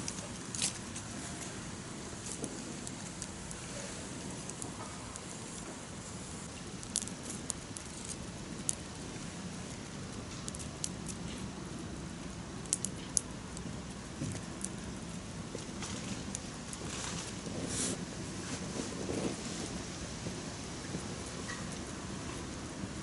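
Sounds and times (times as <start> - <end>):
campfire wood crackling: 0.0 - 23.0.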